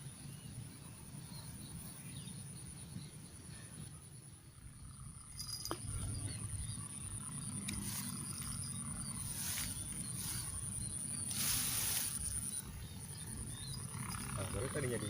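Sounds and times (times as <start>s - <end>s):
high-pitched insect drone: 4.8s - 15.0s.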